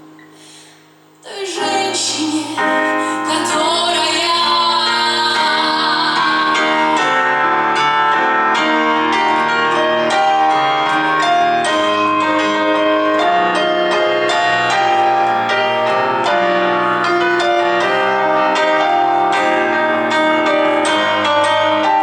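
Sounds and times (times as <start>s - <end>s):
piano music: 1.2s - 22.0s.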